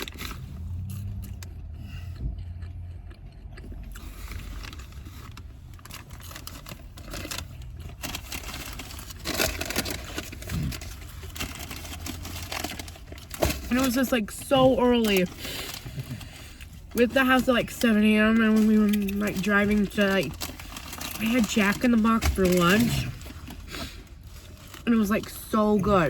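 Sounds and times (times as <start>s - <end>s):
chewing and biting food: 0.0s - 13.5s
packaging crinkling: 4.1s - 26.0s.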